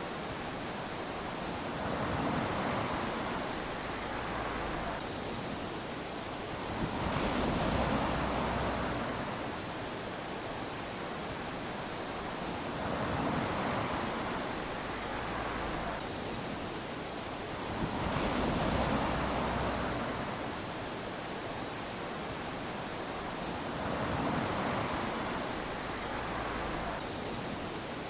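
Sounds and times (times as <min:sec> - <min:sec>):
small waves lapping on shore: 0:00.0 - 0:28.0.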